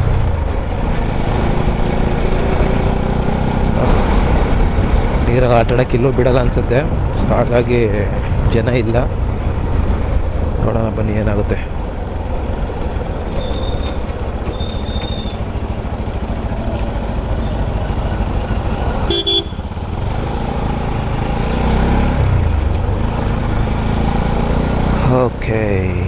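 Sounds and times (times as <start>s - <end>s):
motorcycle engine and wind rumble: 0.0s - 26.0s
vehicle horn toot: 19.0s - 19.8s.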